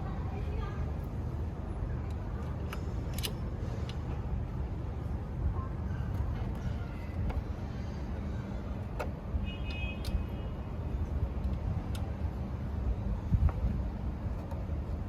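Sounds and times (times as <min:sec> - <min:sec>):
low background rumble: 0:00.0 - 0:15.0
metallic clicks of tools: 0:02.0 - 0:04.0.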